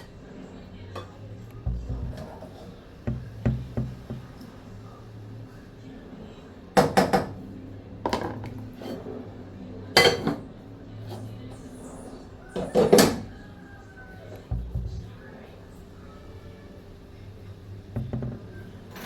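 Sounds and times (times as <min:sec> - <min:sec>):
low hum: 0:01.4 - 0:02.5, 0:14.5 - 0:15.4
utensils clinking on cookware: 0:10.0 - 0:10.5.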